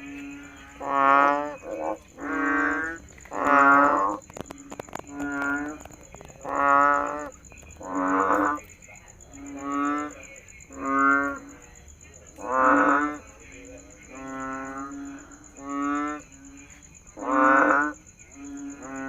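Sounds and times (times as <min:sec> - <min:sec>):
frog calling: 0:00.0 - 0:19.0.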